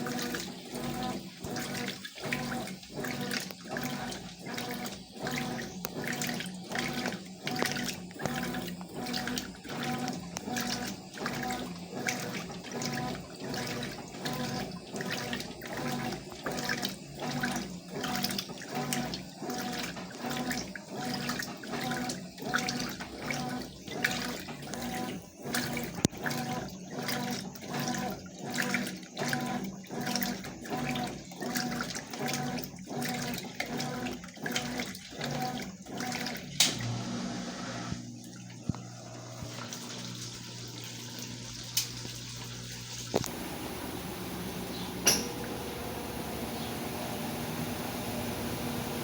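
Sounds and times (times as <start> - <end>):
washing machine water sloshing: 0.0 - 49.0
low motor hum: 43.2 - 49.0.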